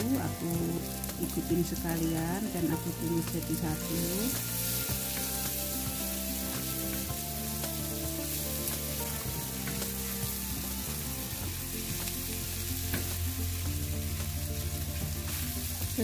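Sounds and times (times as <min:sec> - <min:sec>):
shallots and garlic sizzling: 0:00.0 - 0:16.0
spatula scraping and tapping pan: 0:03.2 - 0:11.1, 0:11.8 - 0:13.3.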